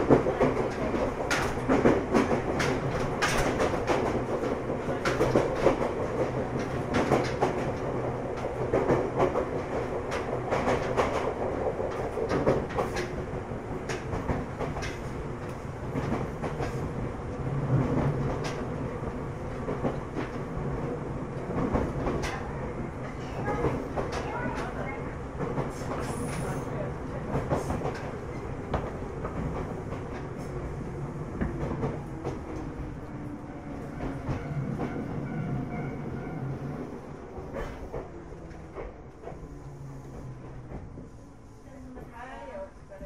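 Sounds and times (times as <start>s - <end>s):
train wheels clacking over rail joints: 0.0s - 15.2s
steady train rumble: 0.0s - 43.0s.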